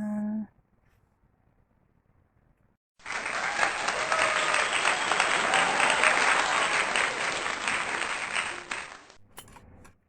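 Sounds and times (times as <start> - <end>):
crowd applause: 3.0 - 9.2
people cheering: 3.0 - 9.2.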